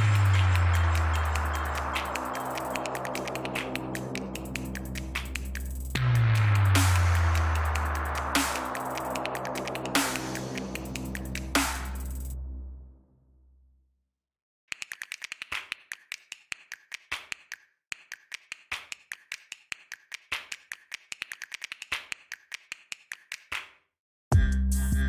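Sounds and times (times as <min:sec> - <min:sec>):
rapid short sharp clicks: 0:00.2 - 0:06.0, 0:14.7 - 0:23.8.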